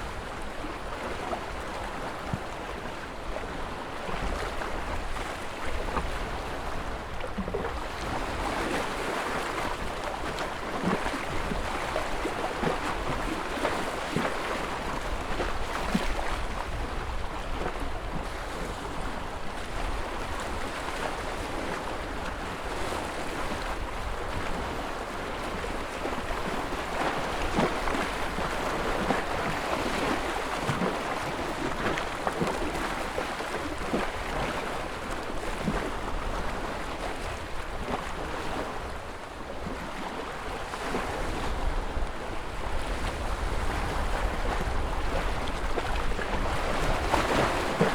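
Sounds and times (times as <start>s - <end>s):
ocean waves washing: 42.9s - 47.9s
small water splashes: 43.8s - 47.9s.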